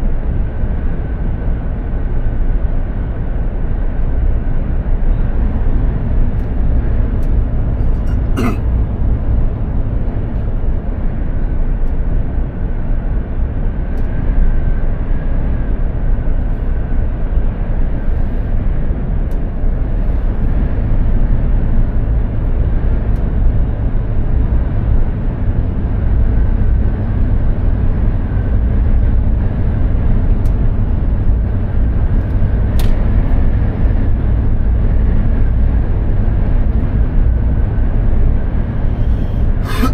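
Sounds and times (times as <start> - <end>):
diesel truck engine drone: 0.0 - 39.9
tyre and road noise: 5.9 - 8.8.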